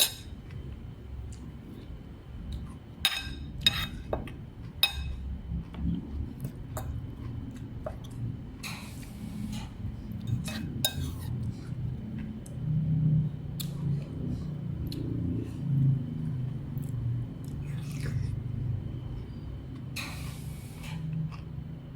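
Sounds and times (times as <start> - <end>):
dishes and utensils clinking: 3.0 - 5.2.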